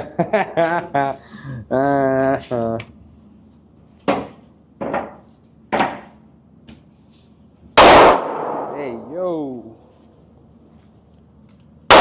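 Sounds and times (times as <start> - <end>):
handgun shots: 7.8 - 8.8.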